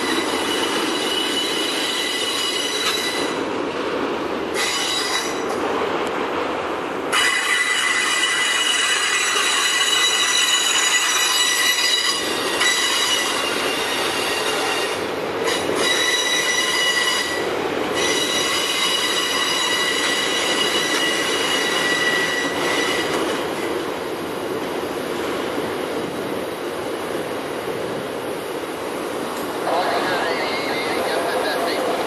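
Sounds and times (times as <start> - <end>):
high-pitched wheel squeal: 0.0 - 3.4, 4.6 - 5.5, 7.1 - 17.4, 18.0 - 23.2
freight train rolling rumble: 0.0 - 32.0.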